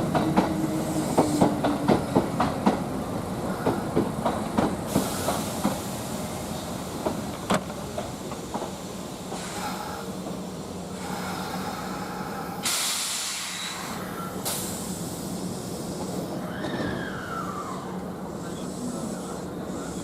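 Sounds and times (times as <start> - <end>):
electric train humming: 0.0 - 20.0
compressed air hisses: 4.9 - 7.0, 8.8 - 16.3.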